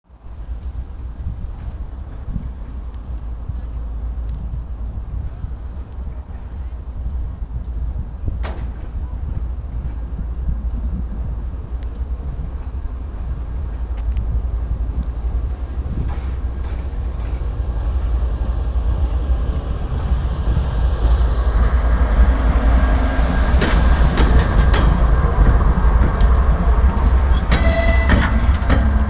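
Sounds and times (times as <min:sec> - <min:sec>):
diesel locomotive rumble: 0:00.1 - 0:29.0
wind buffeting microphone: 0:00.1 - 0:29.0.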